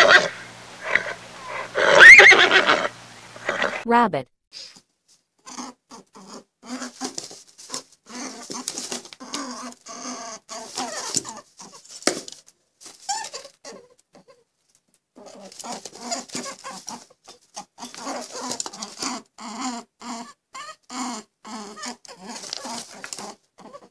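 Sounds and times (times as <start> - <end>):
rabbits making short calls: 0.0 - 3.8.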